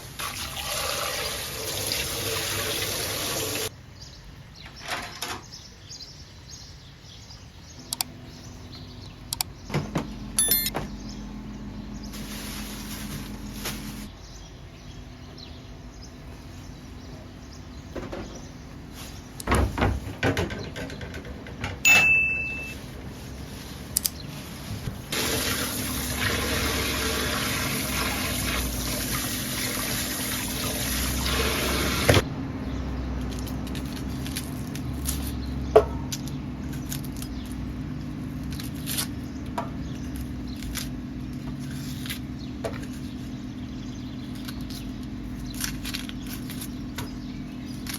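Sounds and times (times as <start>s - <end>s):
water pouring: 0.1s - 3.7s, 25.1s - 32.1s.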